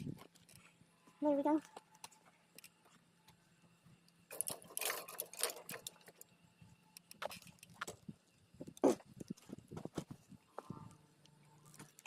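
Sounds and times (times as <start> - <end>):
metal clicks: 4.1 - 6.3
scrap metal jangling: 4.3 - 6.2.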